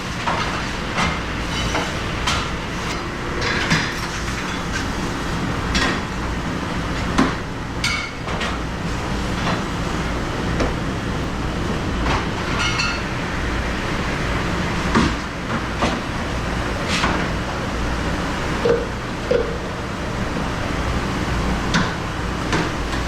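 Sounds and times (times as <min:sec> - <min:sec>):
kitchen machinery hum: 0:00.0 - 0:23.0
dishes and utensils clinking: 0:12.6 - 0:13.1.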